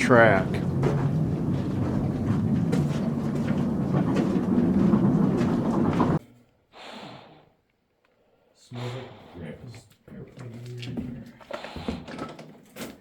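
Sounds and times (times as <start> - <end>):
mine cart wheels rumbling on rails: 0.0 - 6.2.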